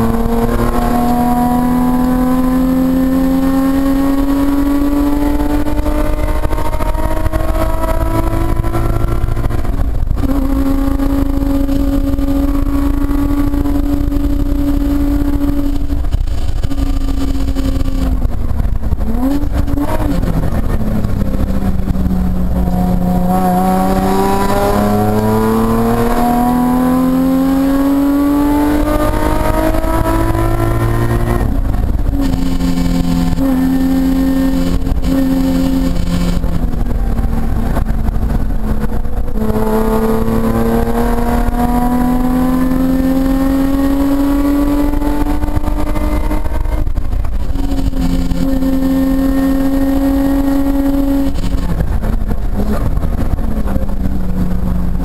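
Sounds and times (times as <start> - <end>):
car engine revving from inside cabin: 22.4 - 31.4.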